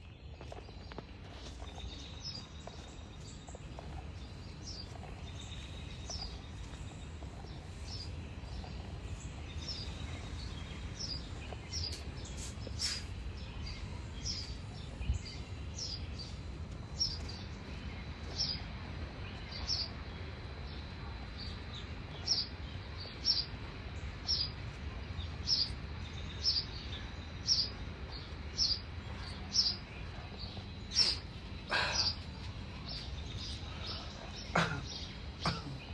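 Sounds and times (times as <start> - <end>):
bird chirping: 0.0 - 35.9.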